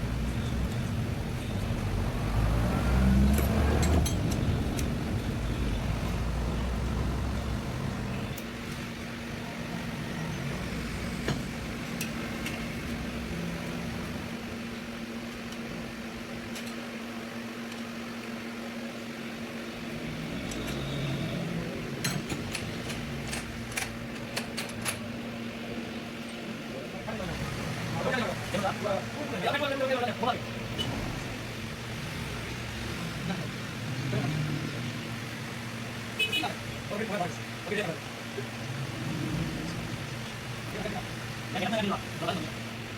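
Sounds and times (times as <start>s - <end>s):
steady mechanical hum: 0.0s - 42.9s.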